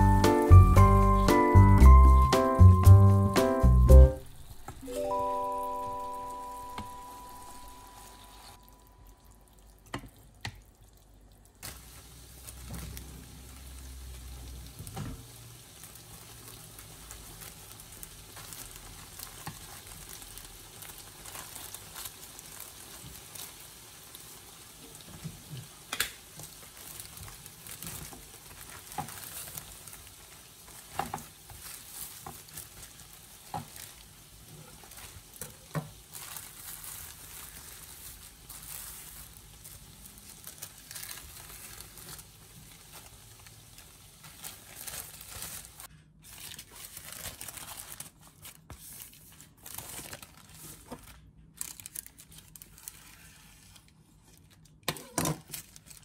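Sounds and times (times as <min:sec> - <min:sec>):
food sizzling in a frying pan: 0:04.2 - 0:09.6, 0:11.6 - 0:45.9
plastic packet clicks and rustles: 0:16.4 - 0:23.5, 0:25.9 - 0:34.1, 0:34.7 - 0:53.2, 0:53.8 - 0:56.0.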